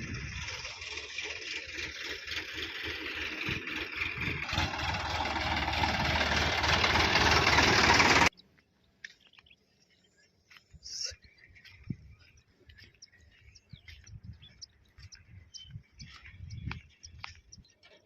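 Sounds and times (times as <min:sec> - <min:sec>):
diesel tractor engine knocking: 0:00.0 - 0:08.3.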